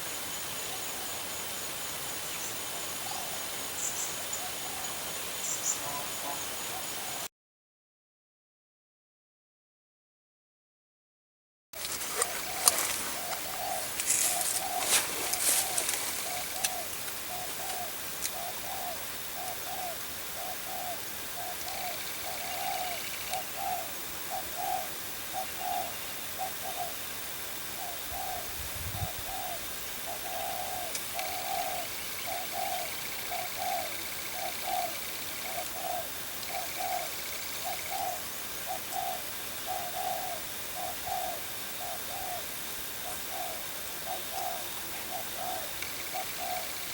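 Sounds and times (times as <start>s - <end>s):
dove cooing: 11.8s - 27.0s, 27.7s - 46.9s.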